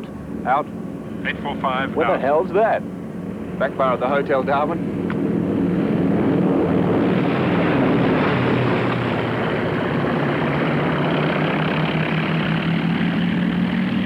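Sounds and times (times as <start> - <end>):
propeller aircraft engines droning: 0.0 - 14.0.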